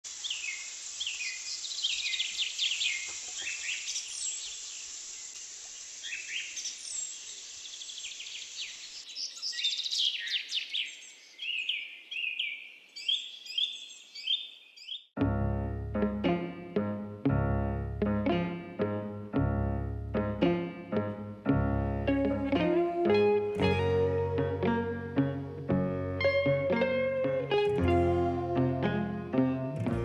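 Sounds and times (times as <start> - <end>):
birds chirping: 0.1 - 15.2.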